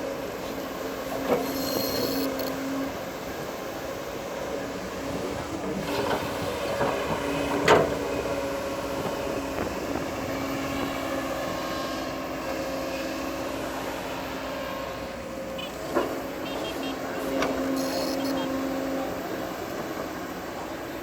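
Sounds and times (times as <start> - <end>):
bulldozer running: 0.0 - 21.0.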